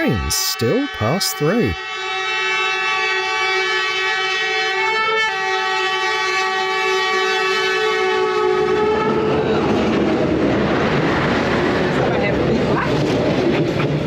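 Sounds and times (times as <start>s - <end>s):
locomotive horn blast: 1.8s - 9.3s
train rumbling and clattering past: 8.4s - 14.0s.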